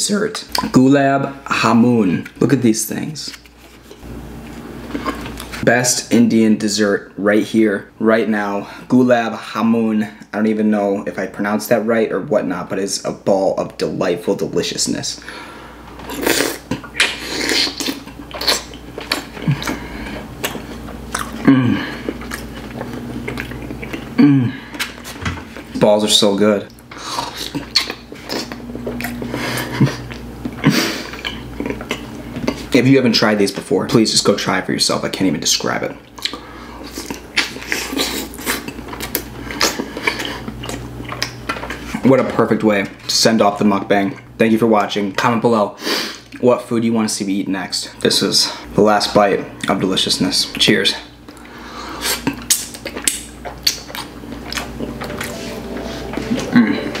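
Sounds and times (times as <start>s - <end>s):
wet chewing: 16.0s - 25.7s, 26.7s - 32.7s, 36.1s - 42.0s, 51.3s - 56.8s
person humming: 21.4s - 22.0s, 24.2s - 24.7s, 55.0s - 57.0s
lip smacks: 51.3s - 55.3s.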